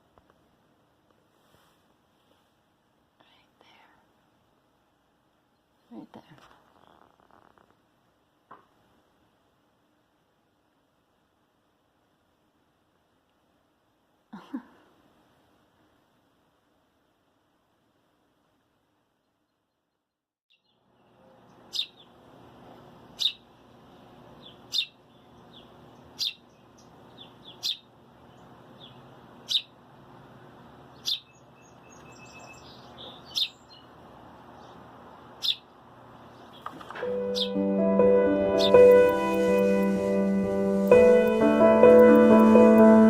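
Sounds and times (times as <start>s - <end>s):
steady background hiss: 0.0s - 19.2s, 20.9s - 43.0s
baby bird chirping: 21.7s - 22.1s, 23.2s - 23.5s, 24.4s - 27.9s, 28.8s - 29.8s, 31.0s - 33.9s, 35.4s - 35.7s, 37.3s - 37.6s.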